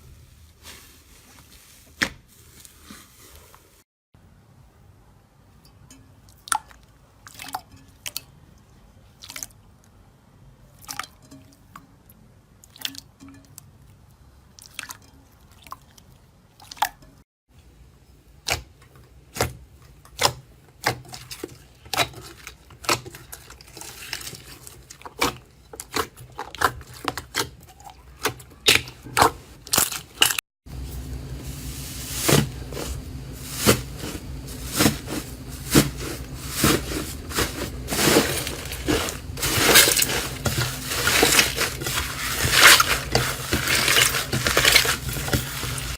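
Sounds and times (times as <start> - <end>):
slime squishing: 18.4 - 30.4, 32.2 - 45.9.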